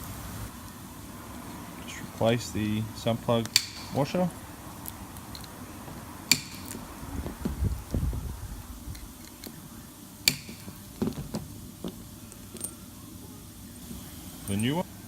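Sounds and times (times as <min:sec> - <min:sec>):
low rumble of handling: 0:01.4 - 0:14.8
small metal parts clicking: 0:03.4 - 0:04.2, 0:04.8 - 0:05.6, 0:06.3 - 0:06.9, 0:08.9 - 0:12.8.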